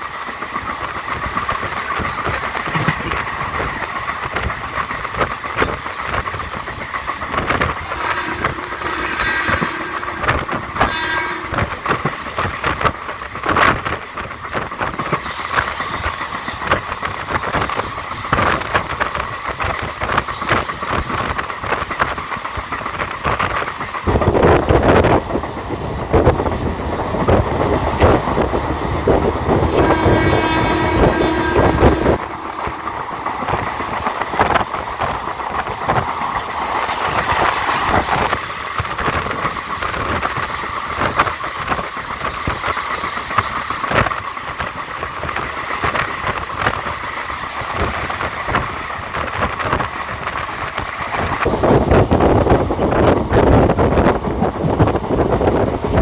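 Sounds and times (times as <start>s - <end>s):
train wheels clattering on rails: 0.0s - 56.0s
train horn: 7.8s - 12.8s, 28.9s - 35.6s.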